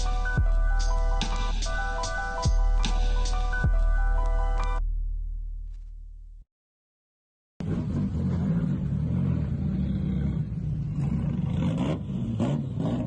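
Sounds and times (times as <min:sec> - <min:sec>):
car engine rough rumble: 0:07.6 - 0:13.0.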